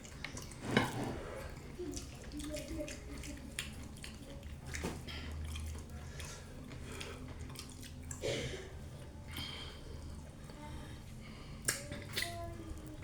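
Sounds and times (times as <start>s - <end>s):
wet chewing: 1.9s - 8.2s.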